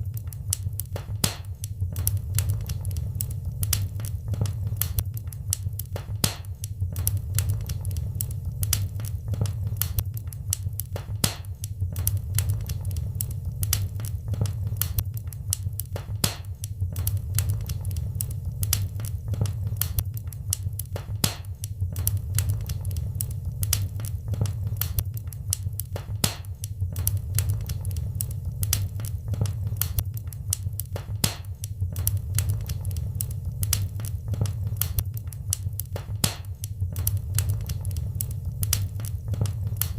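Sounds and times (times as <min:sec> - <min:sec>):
wood fire crackling: 0:00.0 - 0:39.9
low roar of flames: 0:01.9 - 0:06.0, 0:06.9 - 0:10.6, 0:11.9 - 0:16.0, 0:16.9 - 0:21.0, 0:21.9 - 0:26.0, 0:26.9 - 0:31.1, 0:31.8 - 0:36.1, 0:36.7 - 0:39.9.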